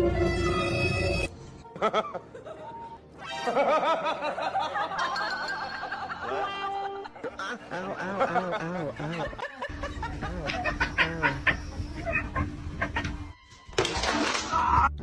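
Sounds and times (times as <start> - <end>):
human laughter: 1.8 - 13.2.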